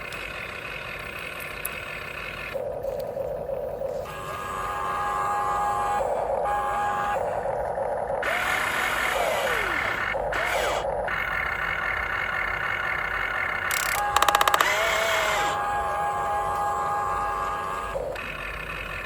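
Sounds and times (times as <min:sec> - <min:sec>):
electric motors whining: 0:02.3 - 0:19.0
fast rattle of clicks: 0:13.6 - 0:15.0.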